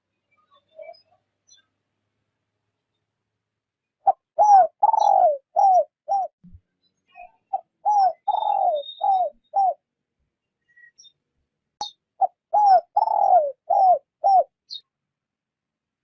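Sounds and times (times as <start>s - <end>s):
faint high bird chirps: 0.0s - 1.8s, 3.8s - 15.0s
dove cooing: 4.0s - 6.3s, 7.5s - 9.8s, 12.2s - 14.5s.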